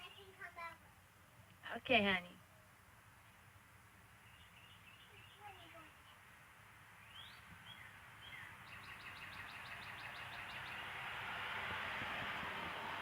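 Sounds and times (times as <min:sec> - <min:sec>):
bird chirps: 0:04.2 - 0:06.2, 0:07.0 - 0:10.9.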